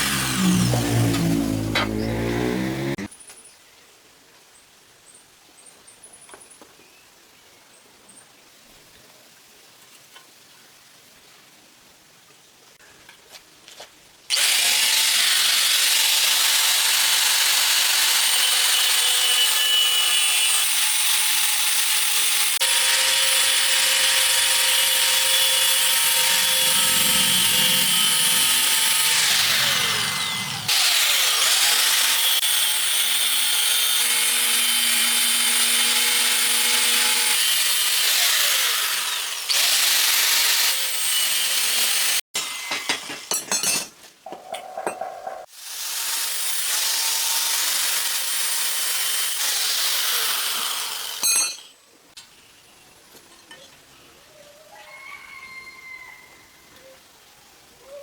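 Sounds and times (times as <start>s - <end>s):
power tool cutting: 0.0s - 3.1s, 14.3s - 42.8s, 45.6s - 51.3s.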